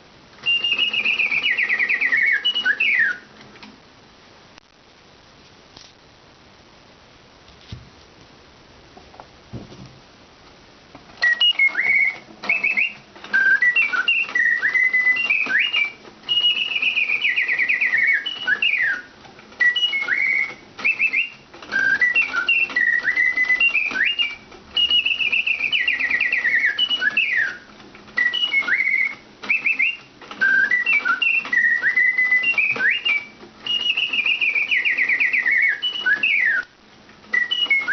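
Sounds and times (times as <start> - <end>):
mechanical bird whistling birdsong: 0.4 - 3.3, 11.2 - 36.7, 37.3 - 37.9.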